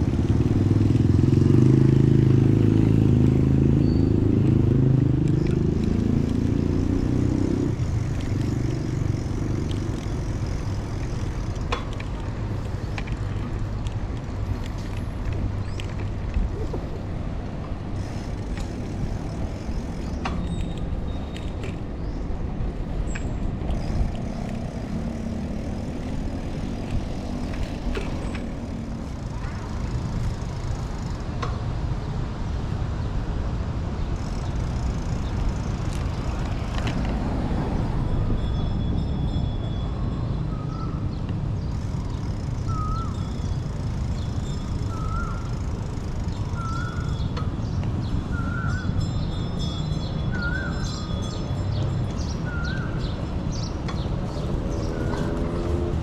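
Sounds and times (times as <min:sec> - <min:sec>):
engine drone passing: 0:00.0 - 0:31.4
traffic rumble: 0:00.0 - 0:56.0
bird rising calls: 0:41.8 - 0:47.3.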